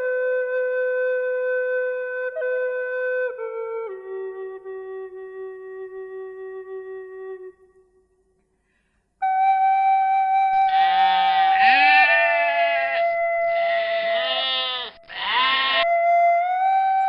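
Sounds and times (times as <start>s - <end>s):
flute tune: 0.0s - 8.2s, 9.2s - 14.6s, 15.6s - 17.0s
goat or sheep bleating: 10.7s - 15.9s.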